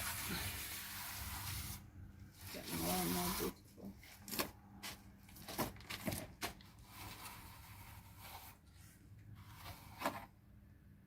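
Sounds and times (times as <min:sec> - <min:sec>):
plastering tool scraping wall: 0:00.0 - 0:03.6, 0:05.5 - 0:10.3.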